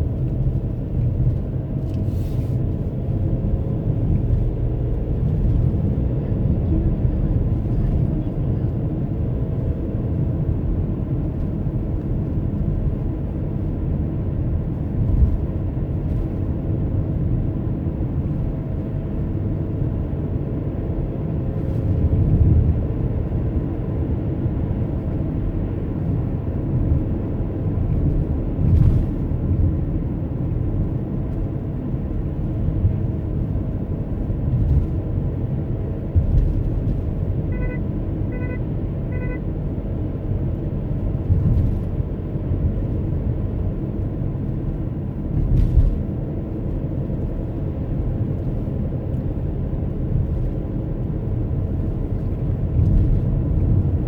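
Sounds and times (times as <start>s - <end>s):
car engine and road rumble: 0.0s - 54.0s
thumps from road bumps: 35.8s - 37.5s, 40.9s - 47.5s, 49.8s - 54.0s.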